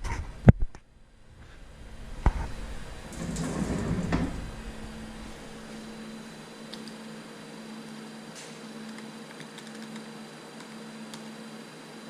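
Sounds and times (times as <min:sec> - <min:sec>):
low machine hum: 0:00.0 - 0:12.0
sliding door rolling along track: 0:01.2 - 0:06.6.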